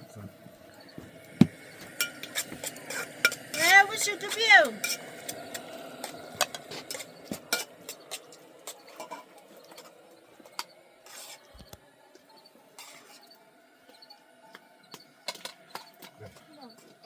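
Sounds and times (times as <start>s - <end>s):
dishes and utensils clinking: 1.8s - 11.5s.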